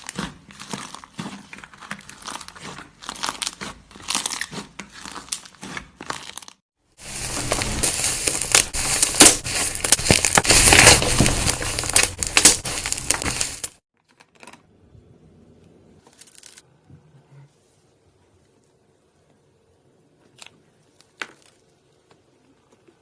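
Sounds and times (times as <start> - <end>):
slime crackling and crunching: 0.0 - 13.8.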